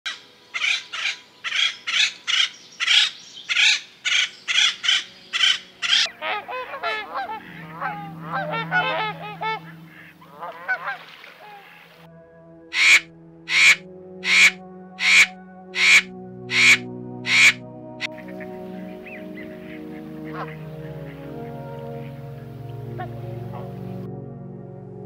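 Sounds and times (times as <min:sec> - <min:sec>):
birds chattering: 0:00.6 - 0:11.0, 0:12.8 - 0:22.2
low steady hum: 0:06.0 - 0:12.0
harsh bird call: 0:12.7 - 0:20.5.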